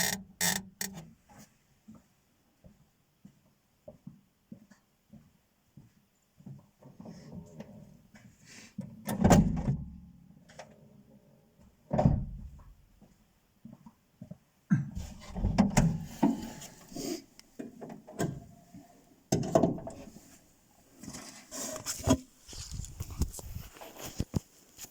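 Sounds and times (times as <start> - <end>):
dashboard creaking: 0.0 - 1.1, 15.0 - 18.5.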